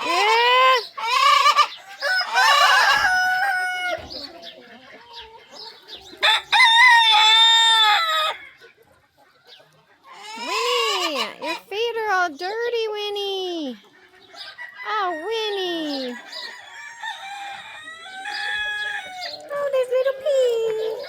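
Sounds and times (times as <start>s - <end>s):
rooster crowing: 1.9s - 4.0s, 6.2s - 8.5s, 16.0s - 19.4s.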